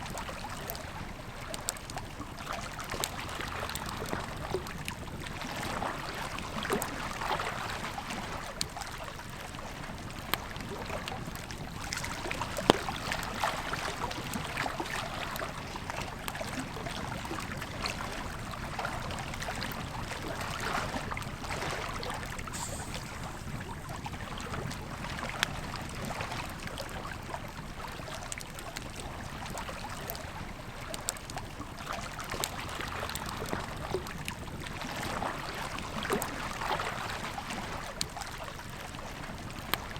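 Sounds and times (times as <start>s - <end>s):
flowing river water: 0.0s - 39.9s
campfire crackling and popping: 22.2s - 30.2s.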